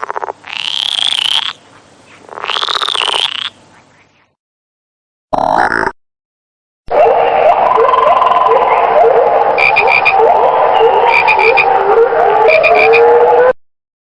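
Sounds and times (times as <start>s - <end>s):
frog chorus: 0.0s - 4.2s, 9.6s - 13.2s.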